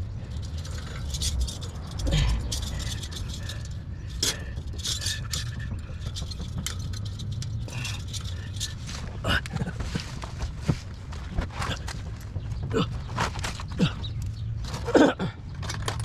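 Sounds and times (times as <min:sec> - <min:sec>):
metal pipe scraping and clinking: 0:00.0 - 0:09.2
low steady rumble: 0:00.0 - 0:16.0.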